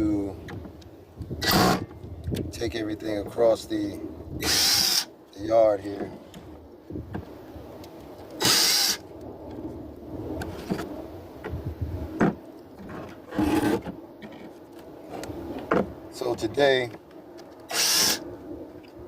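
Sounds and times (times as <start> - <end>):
wooden boards scraping: 12.2 - 16.0.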